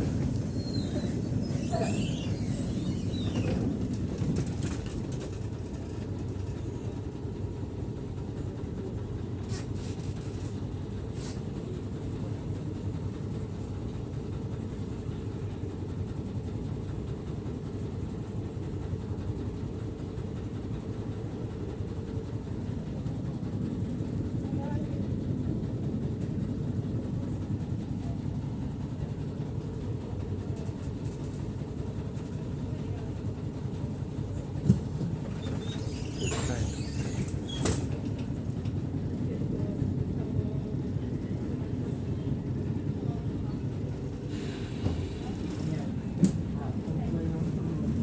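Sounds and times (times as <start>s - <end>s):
tram rumbling on rails: 0.0s - 48.0s
high squeal: 0.3s - 3.7s, 35.4s - 37.8s.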